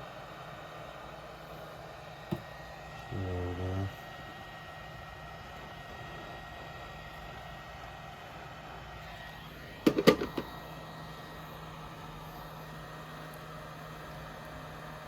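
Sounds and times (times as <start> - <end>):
heat gun blowing hum: 0.0 - 15.0.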